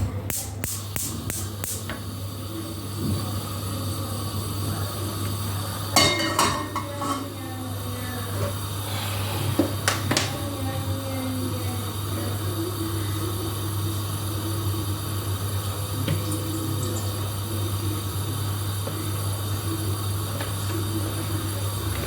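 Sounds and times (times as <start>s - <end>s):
cookware and utensils clattering: 5.9s - 7.4s.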